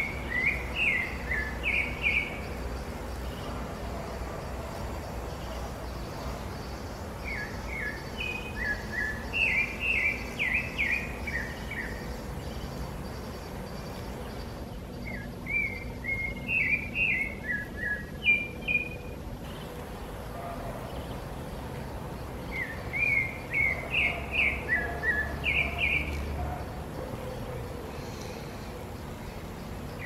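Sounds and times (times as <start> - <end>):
bird singing chirping notes: 0.0 - 3.6, 4.9 - 19.8, 20.4 - 27.0
low background hum: 0.0 - 30.0.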